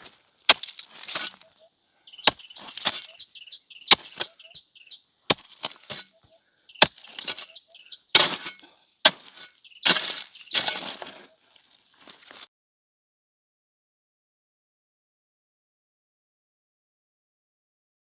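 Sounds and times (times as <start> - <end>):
branches crackling: 0.0 - 12.5
small bird chirping: 0.9 - 8.6, 9.2 - 11.4
hand tool chopping blows: 3.9 - 4.4.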